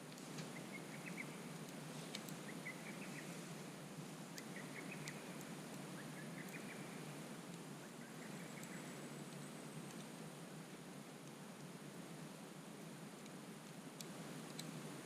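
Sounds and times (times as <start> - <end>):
campfire crackling and popping: 0.0 - 15.0
soft steady hiss: 0.0 - 15.0
bird chirping: 0.5 - 1.4, 2.4 - 3.4, 4.4 - 7.0, 7.8 - 9.8.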